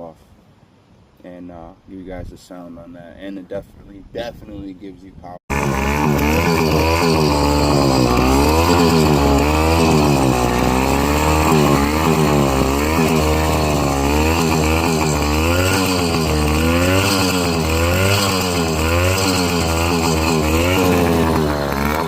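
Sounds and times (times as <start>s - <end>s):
two-stroke engine revving: 5.5s - 22.0s.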